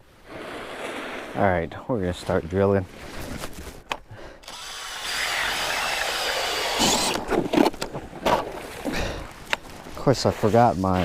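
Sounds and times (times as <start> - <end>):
power ice auger whirring: 4.4 - 7.7
knocks and scrapes: 6.8 - 8.7.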